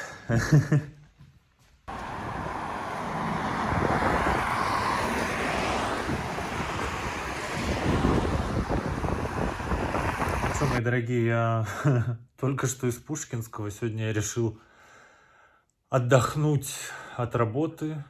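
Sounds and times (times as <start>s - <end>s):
steady outdoor rushing noise: 1.9s - 10.8s.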